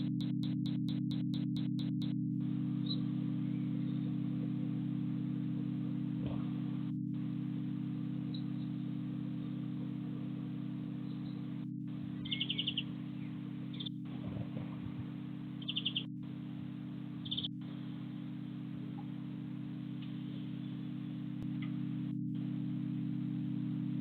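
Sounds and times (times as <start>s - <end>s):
steady low hum: 0.0s - 24.0s
small bird trilling: 12.2s - 13.9s, 15.6s - 16.1s.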